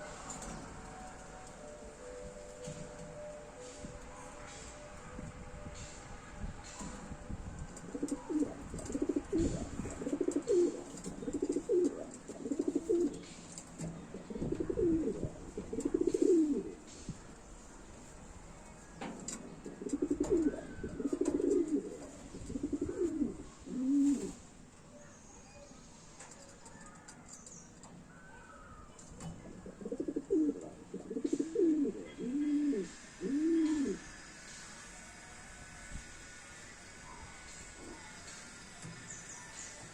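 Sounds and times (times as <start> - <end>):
pigeon cooing: 7.8 - 16.8, 19.6 - 24.4, 28.3 - 34.1.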